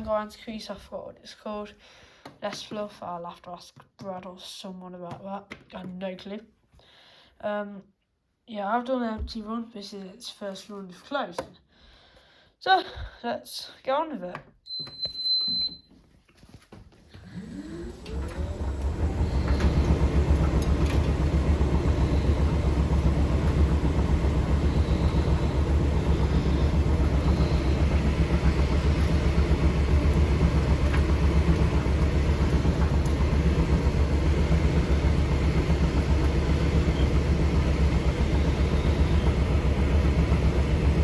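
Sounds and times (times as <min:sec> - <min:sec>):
tumble dryer motor rumbling: 0:17.4 - 0:41.0.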